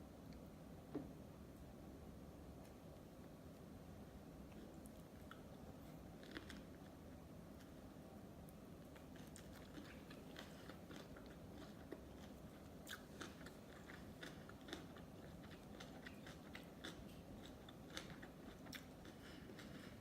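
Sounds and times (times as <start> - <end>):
wet chewing sounds: 4.5 - 7.0, 8.8 - 20.0.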